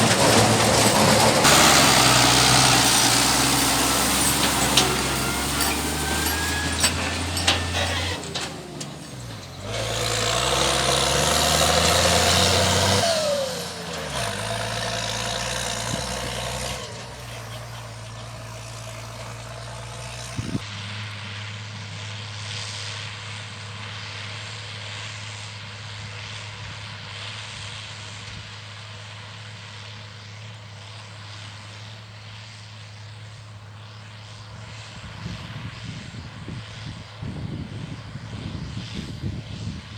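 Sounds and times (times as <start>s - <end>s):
tractor diesel engine revving: 0.0s - 26.4s.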